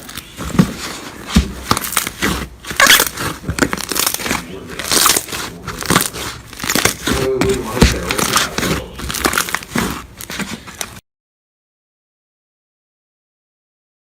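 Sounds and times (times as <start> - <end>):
crunchy slime crackling: 0.0 - 11.0.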